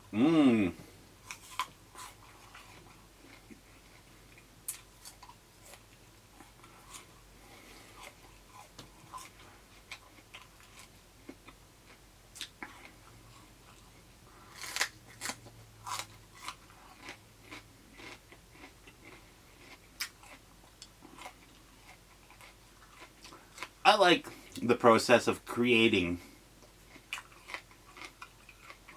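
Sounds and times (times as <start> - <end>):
chewing: 0.7 - 24.6, 26.6 - 28.9
crunching raw vegetables: 12.3 - 24.6, 26.6 - 28.9.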